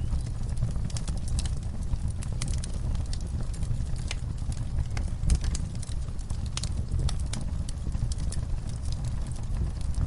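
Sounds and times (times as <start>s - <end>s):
fire crackling and popping: 0.0s - 10.0s
wood fire rumbling: 0.0s - 10.0s.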